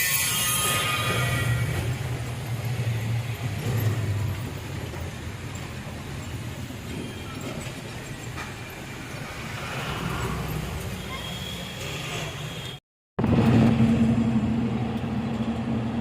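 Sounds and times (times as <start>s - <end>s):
heavy vehicle rumbling: 13.2s - 16.0s.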